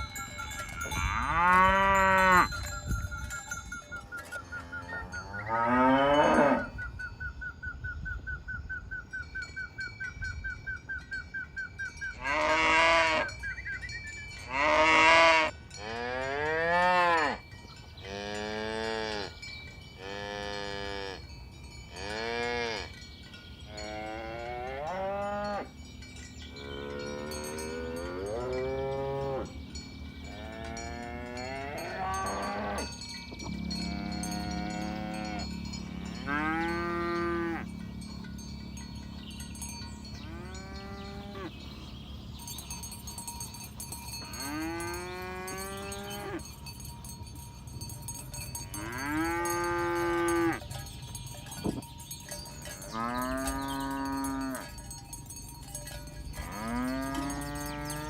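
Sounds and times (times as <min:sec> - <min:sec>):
pulsing bell-like ringing tone: 0:25.4 - 0:58.0
cattle mooing: 0:33.5 - 0:38.0.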